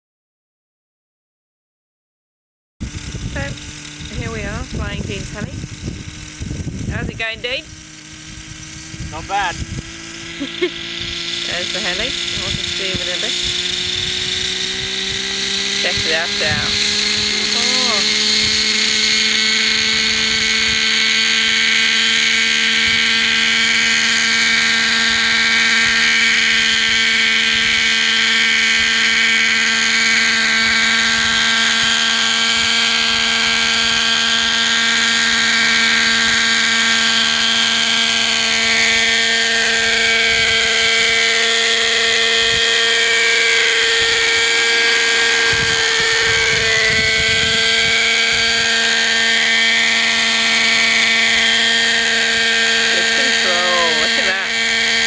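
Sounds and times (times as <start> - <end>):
model helicopter engine whine: 2.8 - 55.0.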